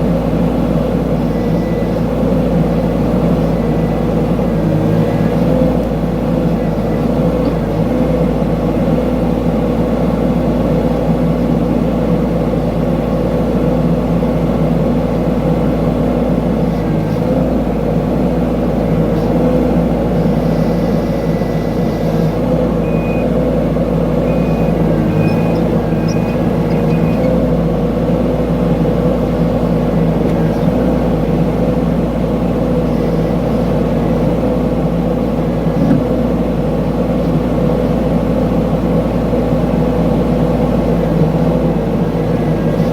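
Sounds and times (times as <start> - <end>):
excavator diesel engine running: 0.0 - 42.9
high-pitched beeps: 22.8 - 23.4, 24.2 - 27.4.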